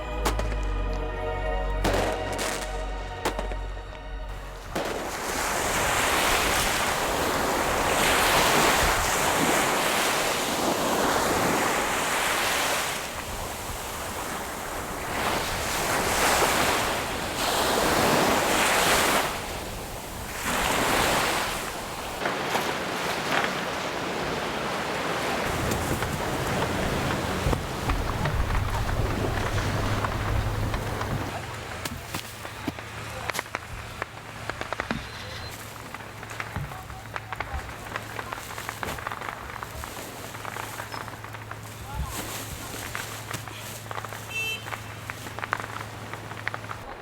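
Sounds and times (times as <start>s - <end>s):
sea waves washing in: 1.3s - 31.8s
wind buffeting microphone: 23.8s - 31.4s.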